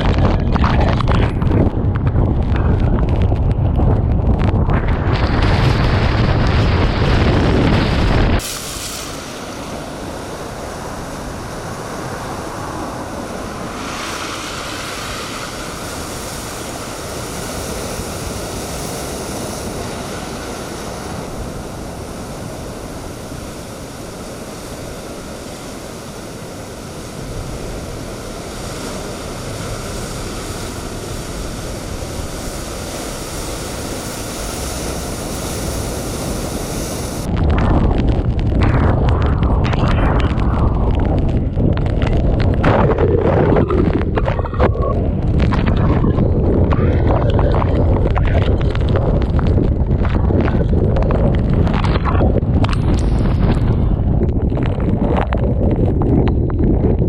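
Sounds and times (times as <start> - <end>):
storm waves breaking: 0.0 - 57.0
strong wind: 0.0 - 57.0.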